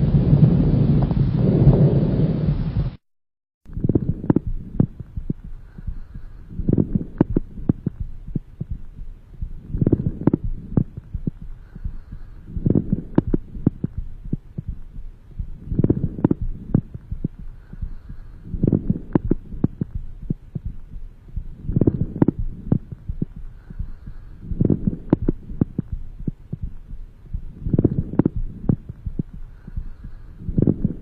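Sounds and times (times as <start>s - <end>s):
breathing through stethoscope: 5.4s - 7.2s, 11.4s - 13.6s, 15.9s - 19.9s, 21.9s - 25.5s, 29.3s - 31.0s.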